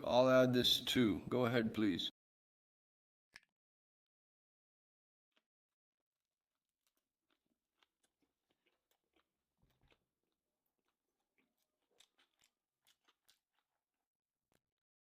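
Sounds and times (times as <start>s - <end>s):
chewing with wet mouth clicks: 6.5s - 14.8s.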